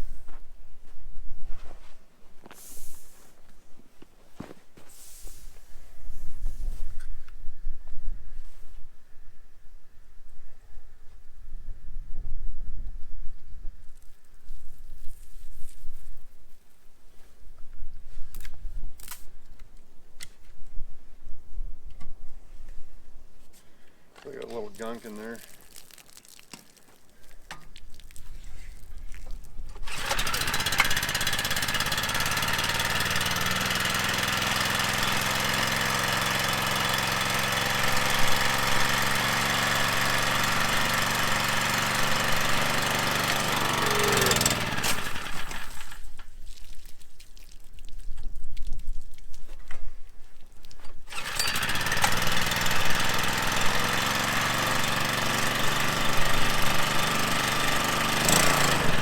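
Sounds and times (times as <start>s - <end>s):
small gasoline engine running: 29.8s - 46.2s, 51.1s - 59.0s.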